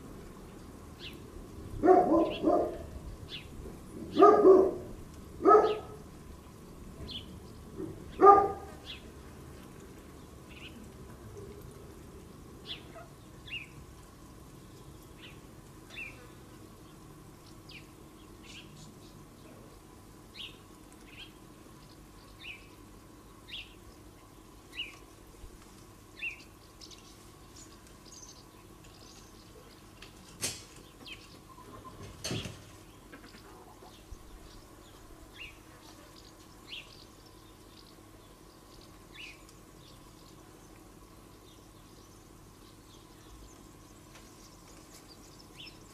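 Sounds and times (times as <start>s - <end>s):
faint steady hum: 0.0s - 45.9s
dog barking: 1.8s - 2.9s, 4.1s - 6.0s, 8.2s - 8.8s.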